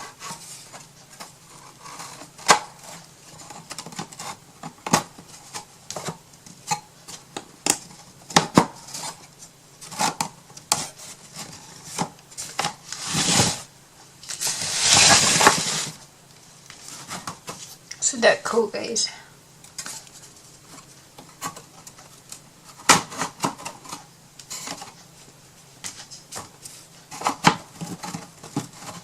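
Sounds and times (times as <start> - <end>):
hissing scrapes: 12.9 - 13.7, 14.4 - 16.0.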